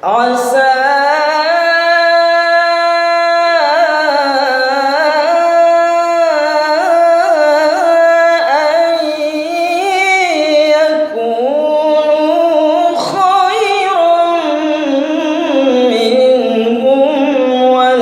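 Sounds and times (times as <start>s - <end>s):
man chanting melodically: 0.0s - 18.0s.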